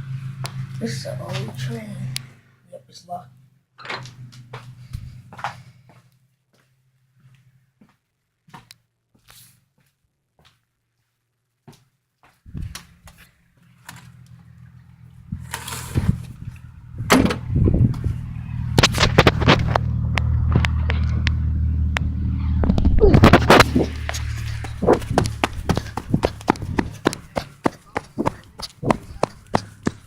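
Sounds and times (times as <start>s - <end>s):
engine running: 0.0s - 2.6s, 3.3s - 5.7s, 12.8s - 30.0s
knocks and clatter: 18.8s - 21.4s, 22.6s - 30.0s.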